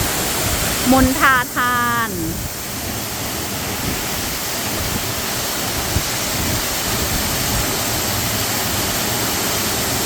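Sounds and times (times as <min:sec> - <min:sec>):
waterfall rushing: 0:00.0 - 0:10.0
wind buffeting microphone: 0:03.6 - 0:07.8.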